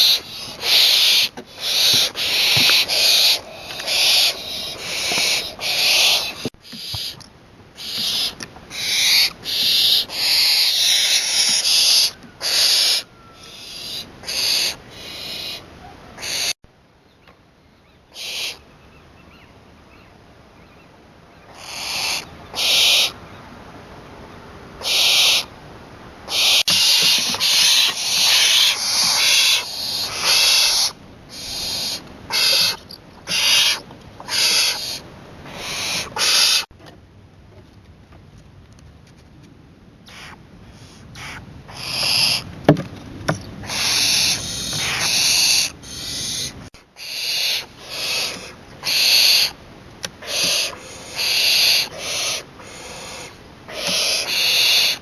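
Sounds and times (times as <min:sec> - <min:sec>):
owl rasping hisses: 0:00.0 - 0:07.2, 0:07.8 - 0:15.6, 0:16.2 - 0:16.6, 0:18.2 - 0:18.6, 0:21.5 - 0:23.2, 0:24.8 - 0:25.5, 0:26.3 - 0:36.7, 0:40.1 - 0:42.4, 0:43.6 - 0:49.6, 0:50.2 - 0:55.0.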